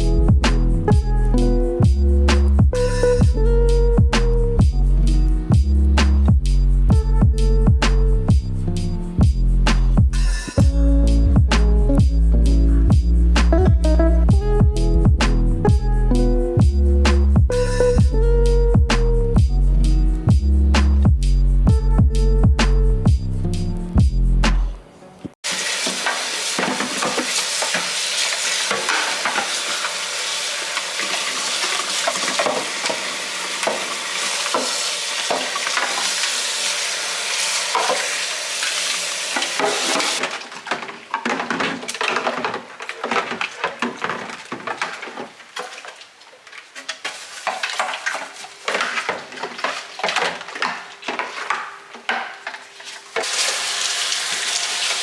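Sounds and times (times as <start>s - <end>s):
containers knocking and clinking: 25.8s - 30.0s, 30.8s - 36.3s, 37.7s - 38.2s, 39.3s - 53.5s.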